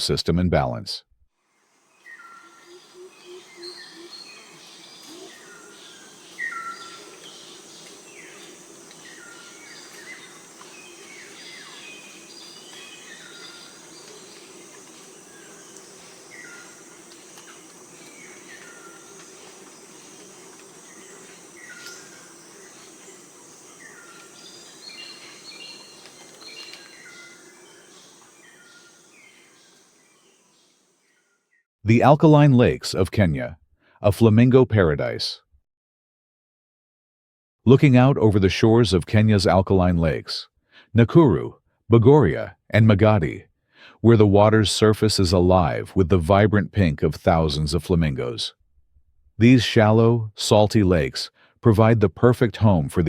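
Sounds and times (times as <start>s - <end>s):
high insect drone: 1.5s - 31.2s
birds calling: 1.7s - 31.4s.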